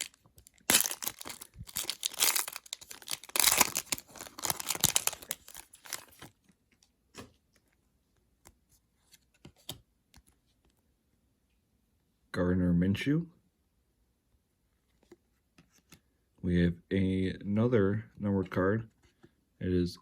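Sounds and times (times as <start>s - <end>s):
wrapper tearing and crinkling: 0.0s - 6.3s.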